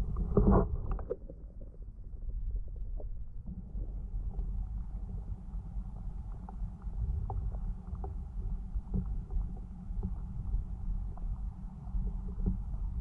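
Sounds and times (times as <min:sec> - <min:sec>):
underwater water rumble: 0:00.0 - 0:13.0
faint clicks and taps: 0:06.0 - 0:10.3.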